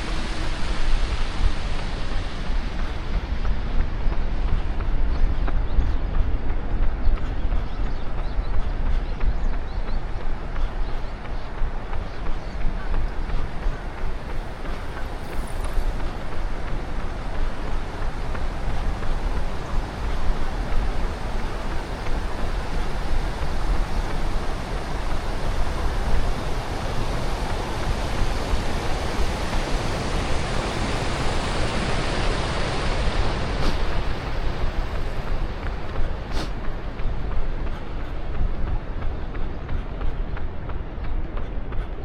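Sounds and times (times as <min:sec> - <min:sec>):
wind rumbling on microphone: 0:00.0 - 0:42.0
road traffic noise: 0:19.6 - 0:37.8.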